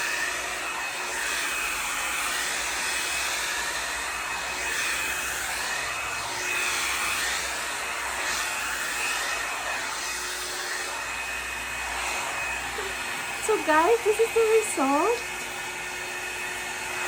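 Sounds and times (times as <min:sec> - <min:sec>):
hot-air brush blowing hiss: 0:00.0 - 0:17.0.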